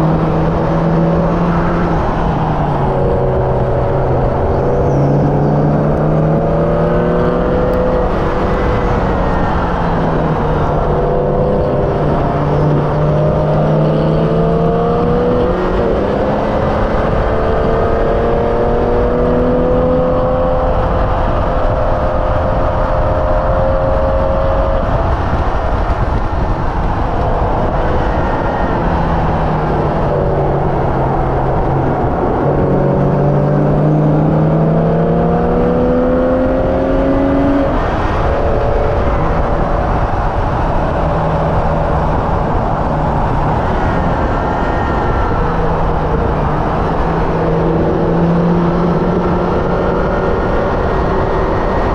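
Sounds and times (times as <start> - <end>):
car engine at full throttle: 0.0 - 51.9
road and wind noise: 0.0 - 51.9.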